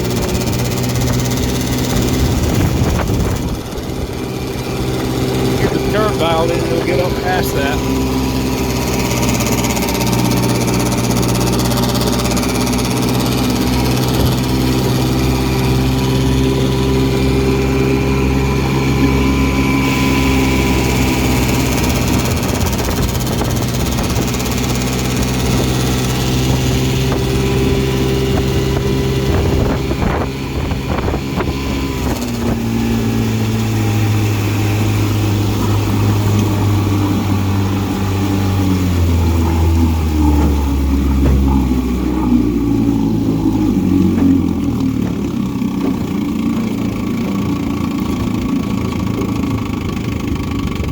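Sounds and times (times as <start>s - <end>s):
outboard motor running: 0.0s - 50.9s
engine hood rattling: 35.6s - 50.9s.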